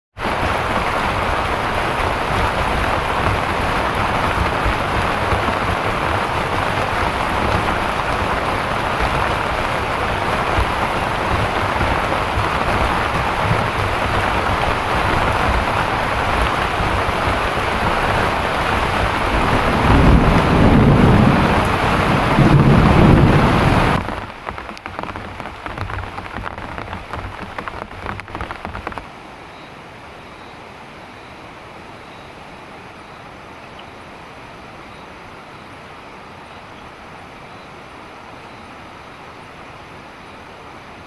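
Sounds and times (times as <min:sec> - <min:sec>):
heavy rain pouring: 0:00.1 - 0:29.4
low rumble of thunder: 0:02.4 - 0:24.2.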